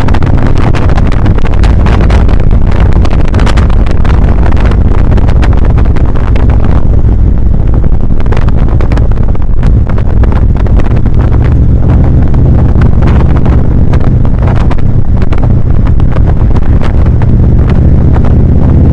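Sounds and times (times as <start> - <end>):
motorcycle engine running: 0.0 - 18.9
wind buffeting microphone: 0.0 - 18.9.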